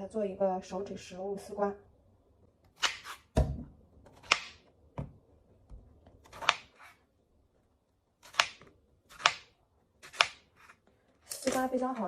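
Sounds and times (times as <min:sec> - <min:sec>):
knife cutting on cutting board: 0:02.7 - 0:03.4, 0:06.2 - 0:07.0.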